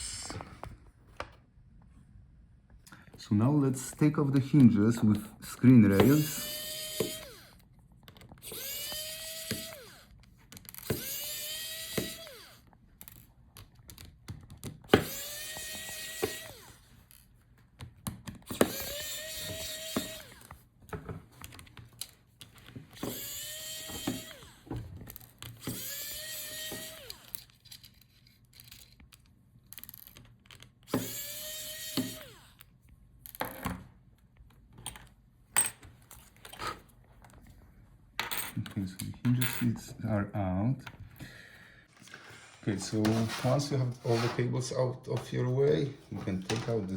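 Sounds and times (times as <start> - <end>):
electric screwdriver whining: 5.9 - 13.2, 14.8 - 17.2, 18.4 - 20.6, 22.9 - 27.6, 30.9 - 32.7
screws and parts rattling: 21.3 - 32.6.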